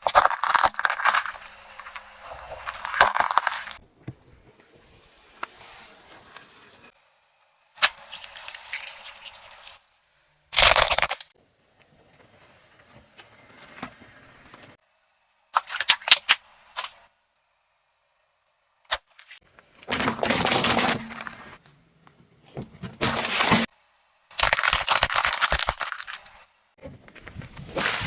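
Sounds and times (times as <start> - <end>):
objects cracking under car tyre: 0.0 - 3.8, 10.6 - 11.3, 24.3 - 26.4.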